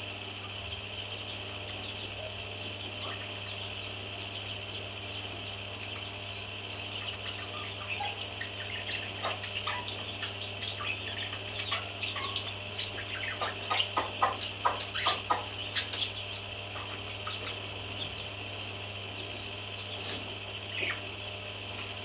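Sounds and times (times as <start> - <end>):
background bird chatter: 0.1 - 22.0
baby parrots chirping: 0.6 - 18.4, 19.2 - 21.1.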